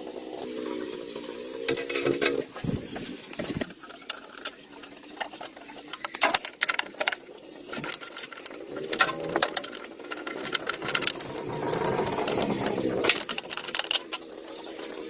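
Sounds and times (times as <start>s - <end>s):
rapid mechanical clicking: 3.3s - 15.0s.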